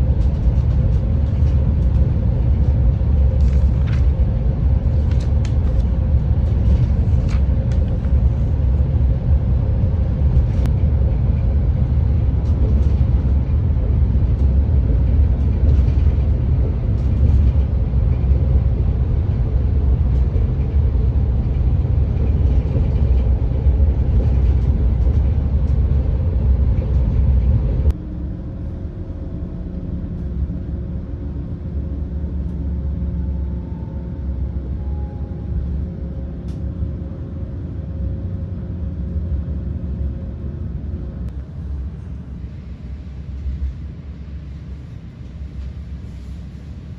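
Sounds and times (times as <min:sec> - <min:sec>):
train running rumble: 0:00.0 - 0:46.9.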